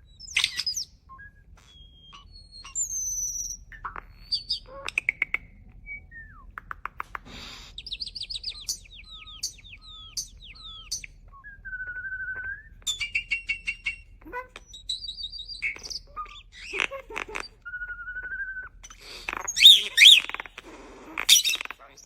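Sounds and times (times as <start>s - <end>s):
starling singing: 0.0s - 6.2s, 7.3s - 22.0s.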